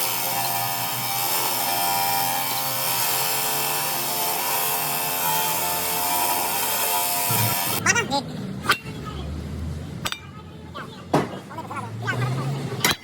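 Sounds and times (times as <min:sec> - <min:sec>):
power tool whining: 0:00.0 - 0:07.8.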